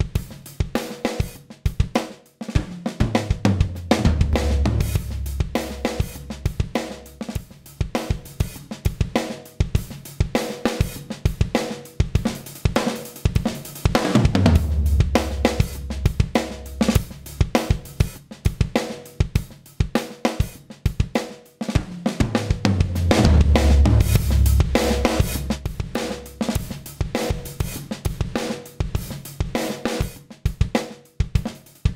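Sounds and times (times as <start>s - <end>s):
drum kit beat: 0.0s - 31.9s
deep bass: 3.4s - 7.3s, 14.2s - 17.6s, 22.2s - 26.6s.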